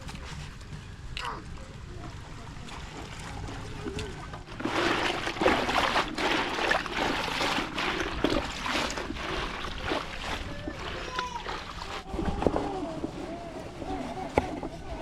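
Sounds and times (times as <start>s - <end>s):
water pouring and splashing: 2.1s - 15.0s.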